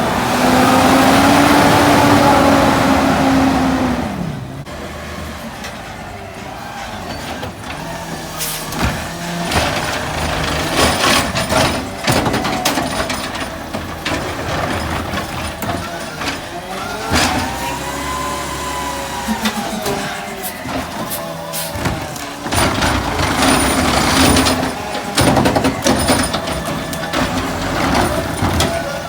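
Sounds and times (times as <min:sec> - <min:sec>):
garbage truck engine running: 0:00.0 - 0:29.0
knocks and clatters: 0:06.9 - 0:17.6, 0:19.2 - 0:29.0.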